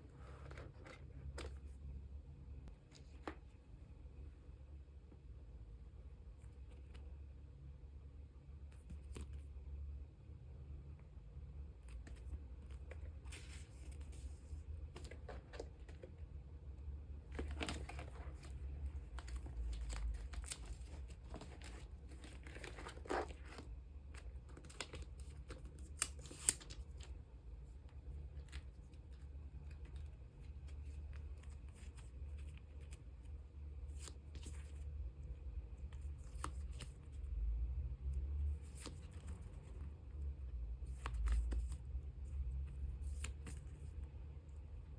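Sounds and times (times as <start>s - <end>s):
plastic sleeves crinkling: 17.2s - 33.2s.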